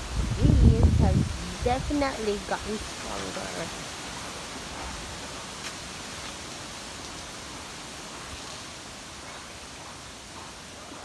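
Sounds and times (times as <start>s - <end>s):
strong wind rushing: 0.0s - 3.9s.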